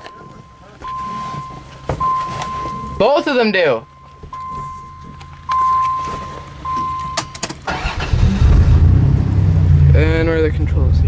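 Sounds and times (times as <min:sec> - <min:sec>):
electronic warning tone: 0:00.0 - 0:07.4
engine cranking and idling: 0:00.0 - 0:11.0.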